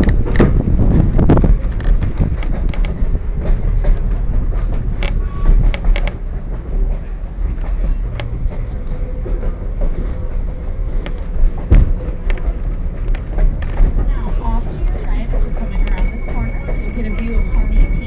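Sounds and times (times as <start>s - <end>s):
train cars rumbling on track: 0.0s - 18.0s
wheels clicking over rails: 0.0s - 18.0s.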